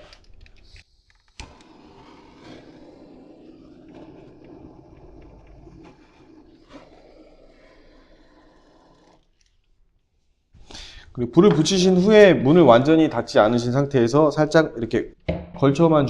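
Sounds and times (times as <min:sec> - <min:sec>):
flame rushing in stove: 0:00.0 - 0:09.7.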